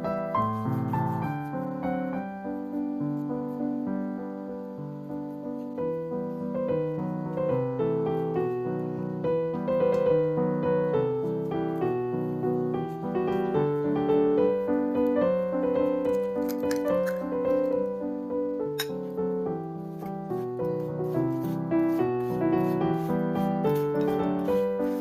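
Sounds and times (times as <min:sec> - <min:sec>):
gentle piano music: 0:00.0 - 0:25.0.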